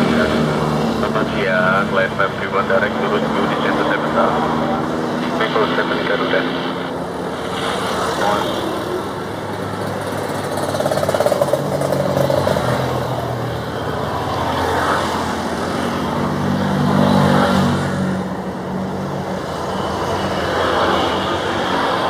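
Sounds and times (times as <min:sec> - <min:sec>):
jet engines landing: 0:00.0 - 0:22.0.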